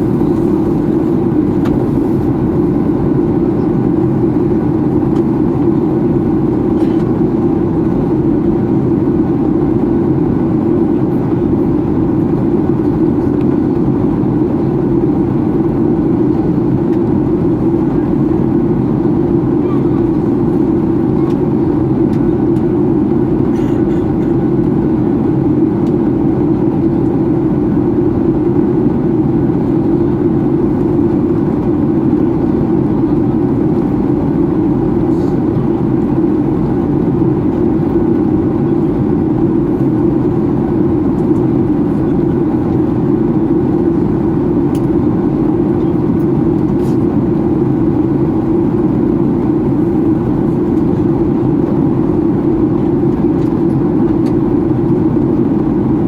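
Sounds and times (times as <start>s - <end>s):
airplane cabin engine rush: 0.0s - 56.0s.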